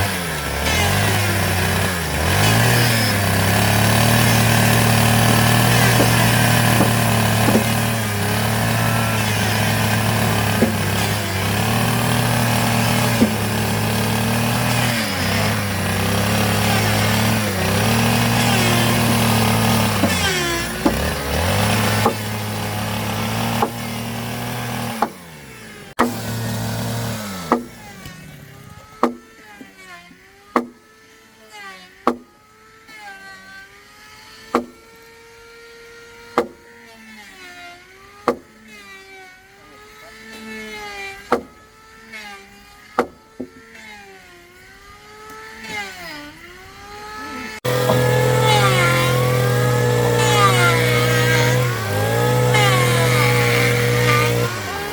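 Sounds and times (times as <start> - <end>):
power drill boring into wood: 0.0 - 30.6, 36.3 - 54.9
sharp knocks: 4.0 - 13.7, 19.0 - 22.3, 23.5 - 23.8, 26.0 - 26.2, 27.5 - 27.8, 29.0 - 29.3, 30.6 - 30.8, 32.1 - 32.3, 34.6 - 34.8, 36.4 - 36.6, 38.3 - 38.5, 41.3 - 41.6, 43.0 - 43.6.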